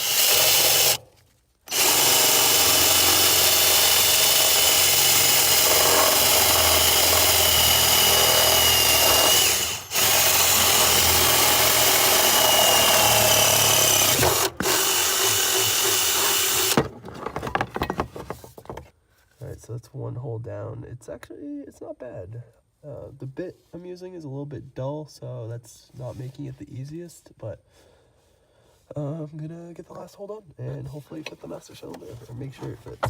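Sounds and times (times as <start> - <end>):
power drill boring through steel: 0.0 - 1.0, 1.7 - 16.9.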